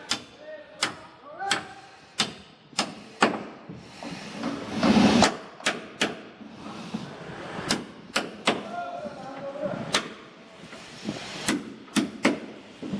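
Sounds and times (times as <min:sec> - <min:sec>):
hammer striking wood: 0:00.1 - 0:03.6, 0:05.2 - 0:06.3, 0:07.7 - 0:08.7, 0:11.5 - 0:12.6.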